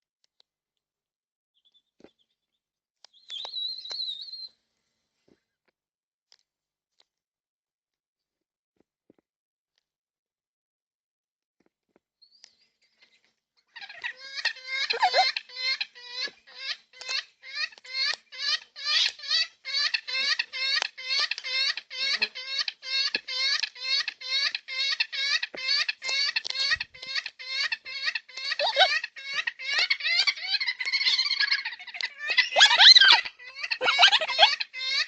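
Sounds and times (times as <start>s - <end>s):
bird harsh rasping calls: 13.8s - 35.0s.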